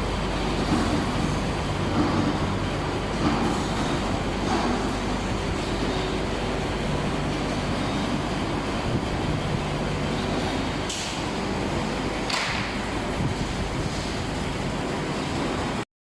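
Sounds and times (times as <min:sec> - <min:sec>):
tractor engine running: 0:00.0 - 0:15.1.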